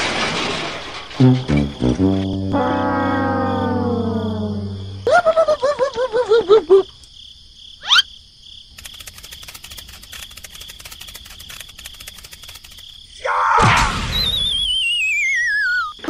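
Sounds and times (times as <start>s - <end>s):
squeaky warbling chirps: 7.8s - 8.1s, 14.1s - 16.0s
rapid clicking: 8.7s - 13.0s.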